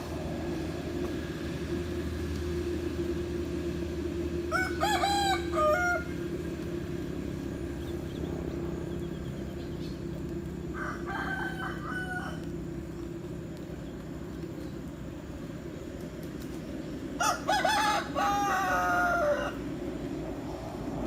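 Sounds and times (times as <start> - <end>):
low hum: 0.0 - 21.0
roosters crowing: 0.1 - 14.0, 16.8 - 21.0.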